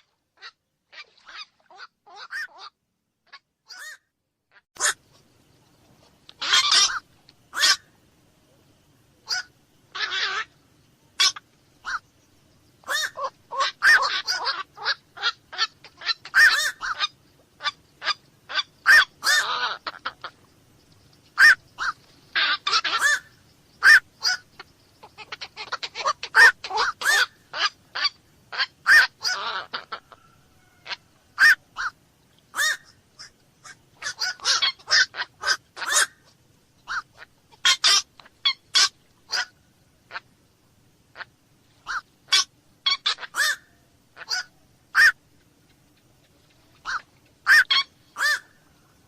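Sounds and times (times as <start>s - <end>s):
heron squawking: 0.4s - 2.7s, 3.7s - 4.0s, 6.4s - 7.9s, 9.2s - 10.6s, 11.2s - 12.1s, 12.8s - 20.4s, 21.4s - 40.3s, 41.1s - 45.2s, 46.7s - 48.6s.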